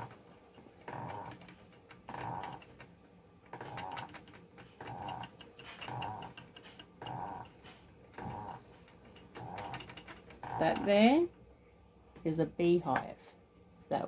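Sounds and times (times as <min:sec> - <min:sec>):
spinning wheel being treadled: 0:00.0 - 0:02.9, 0:03.5 - 0:11.3
treadle creaking: 0:00.0 - 0:02.9, 0:03.5 - 0:11.3.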